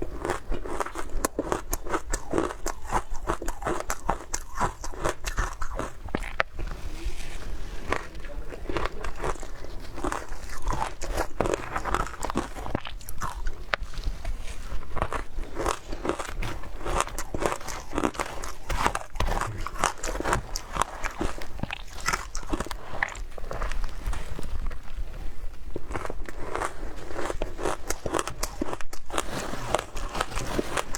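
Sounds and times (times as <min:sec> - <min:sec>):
person chewing ice crunching: 0:00.0 - 0:30.9.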